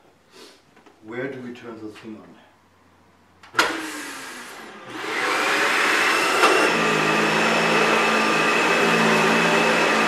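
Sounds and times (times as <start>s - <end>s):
vacuum cleaner motor whine: 3.6s - 10.0s.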